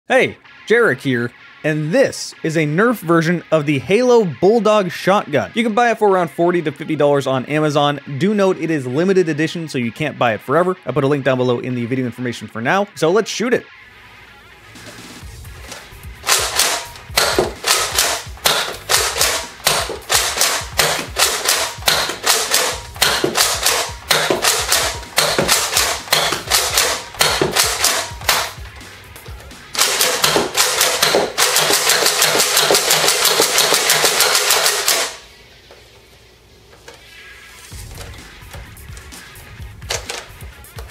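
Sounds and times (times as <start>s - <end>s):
toy blaster plastic clacks: 29.8s - 35.2s.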